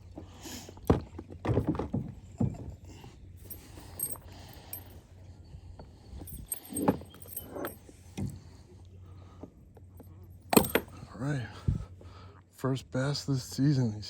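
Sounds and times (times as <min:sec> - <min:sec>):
knocks and rattles on plastic kayak: 0:00.8 - 0:02.8.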